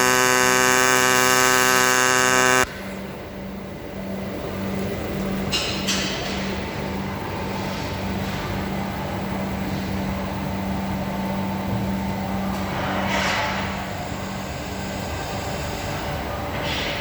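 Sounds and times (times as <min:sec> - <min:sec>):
welding arc crackling: 0:00.0 - 0:02.7
low hum: 0:00.0 - 0:03.1.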